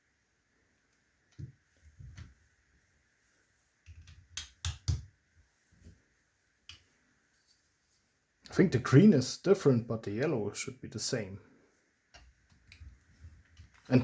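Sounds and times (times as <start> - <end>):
plastic toys clicking and knocking: 3.9 - 5.1.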